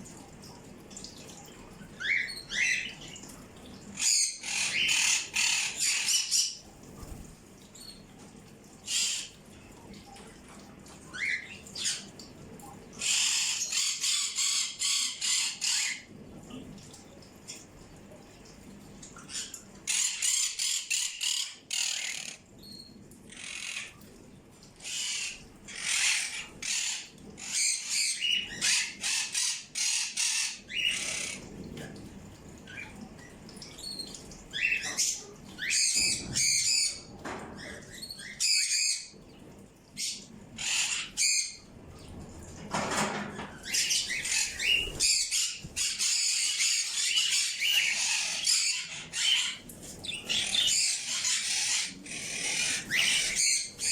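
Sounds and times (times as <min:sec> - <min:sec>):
birds chirping and squawking: 0:04.0 - 0:08.0, 0:08.8 - 0:09.4, 0:12.9 - 0:16.1, 0:19.2 - 0:24.0, 0:24.8 - 0:31.6, 0:32.6 - 0:39.2, 0:39.9 - 0:41.7, 0:42.9 - 0:53.9.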